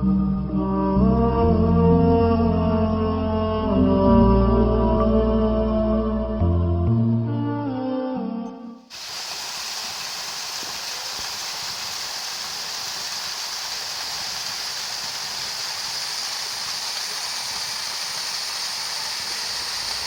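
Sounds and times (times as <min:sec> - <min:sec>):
waterfall rushing: 0:08.9 - 0:20.0.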